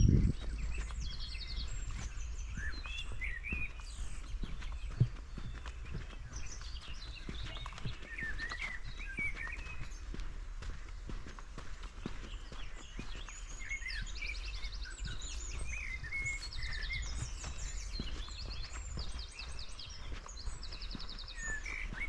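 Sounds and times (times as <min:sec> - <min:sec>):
steady low rumble: 0:00.0 - 0:08.1
footsteps on forest floor: 0:00.0 - 0:22.0
songbirds chirping and trilling: 0:00.0 - 0:22.0.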